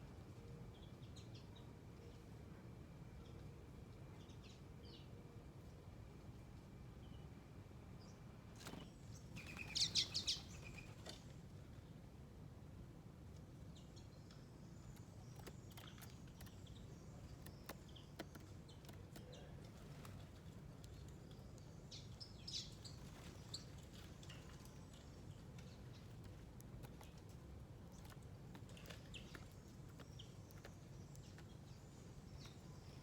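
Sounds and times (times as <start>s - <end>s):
small birds chirping: 8.0s - 11.9s, 13.4s - 33.0s.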